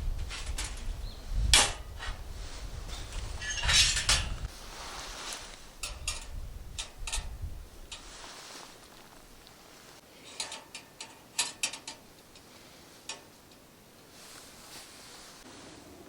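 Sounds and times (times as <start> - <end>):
camp gear knocking and clinking: 0.1 - 2.2, 2.9 - 4.5, 5.3 - 8.1, 10.2 - 13.7.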